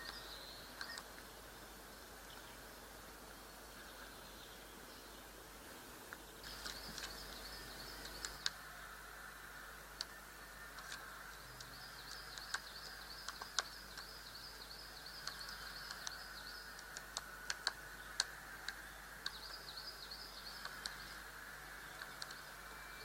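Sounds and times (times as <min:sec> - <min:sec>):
steady hiss: 0:00.0 - 0:23.0
high bird chirping: 0:11.4 - 0:16.9
sharp ticks: 0:11.6 - 0:21.2.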